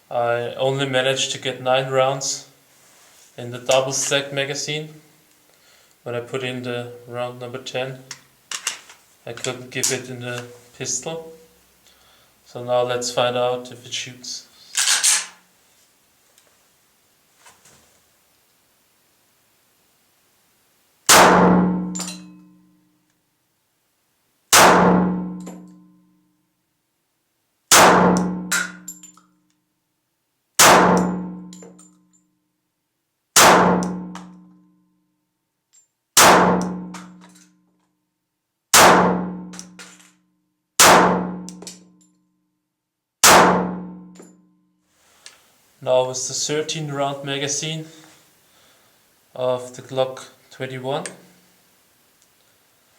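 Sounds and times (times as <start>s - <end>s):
pistol shots: 21.1s - 22.1s, 24.5s - 25.5s, 27.7s - 28.8s, 30.6s - 31.3s, 33.4s - 34.1s, 36.2s - 37.1s, 38.8s - 39.7s, 40.8s - 41.5s, 43.2s - 43.8s.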